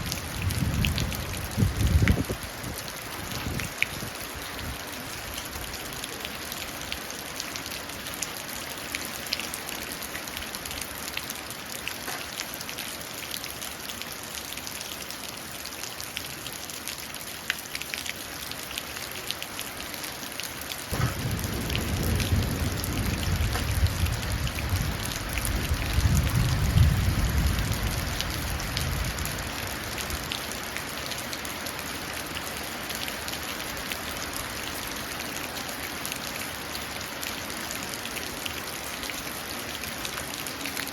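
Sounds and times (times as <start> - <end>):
rain dripping into puddle: 0.0 - 40.9
thunder rumbling: 20.9 - 29.4.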